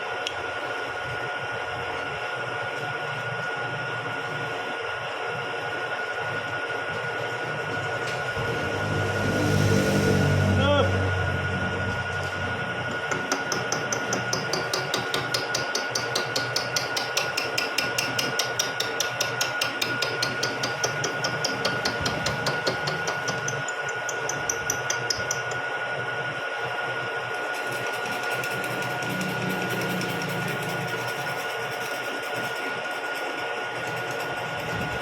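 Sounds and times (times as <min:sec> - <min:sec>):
steady machine whine: 0:00.0 - 0:18.7, 0:19.5 - 0:35.0
milling machine running: 0:04.2 - 0:35.0
milling machine ticking clatter: 0:12.9 - 0:25.7.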